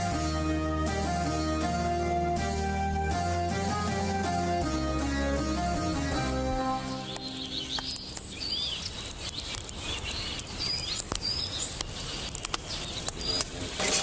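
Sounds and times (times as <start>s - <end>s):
steady outdoor hiss: 0.0s - 14.0s
small birds chirping: 5.0s - 14.0s
scattered clicks: 7.1s - 14.0s.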